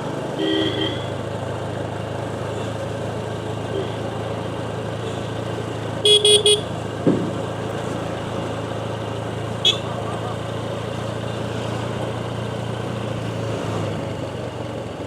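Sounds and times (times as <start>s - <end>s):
motorcycle engine humming: 0.0s - 15.0s
vehicle horns honking: 0.4s - 1.2s, 6.0s - 6.8s, 9.6s - 10.0s.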